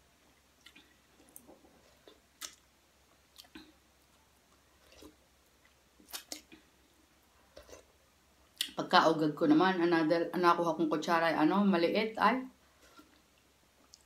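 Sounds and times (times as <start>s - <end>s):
person chewing food: 0.2s - 8.7s.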